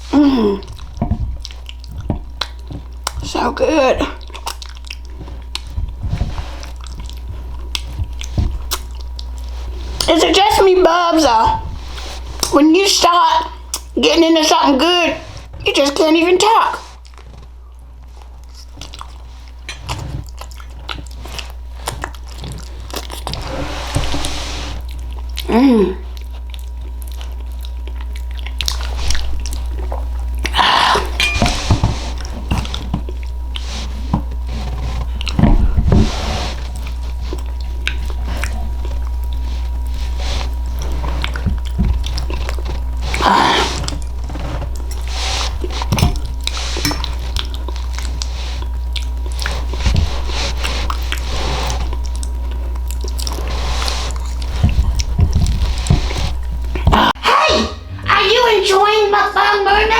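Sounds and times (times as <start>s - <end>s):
chewing soft food: 0.0s - 3.4s, 4.0s - 10.6s, 11.5s - 12.6s, 13.4s - 14.0s, 16.8s - 57.2s
low hum: 18.8s - 59.9s.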